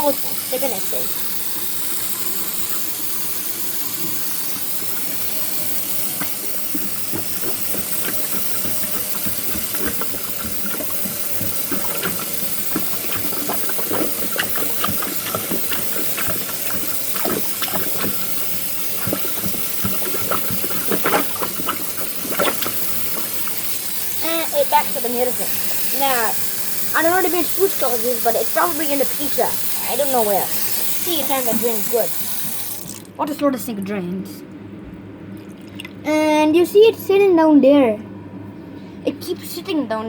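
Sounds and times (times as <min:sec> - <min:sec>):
water running into sink: 0:00.0 - 0:33.2
small splashes and pops: 0:04.9 - 0:26.4.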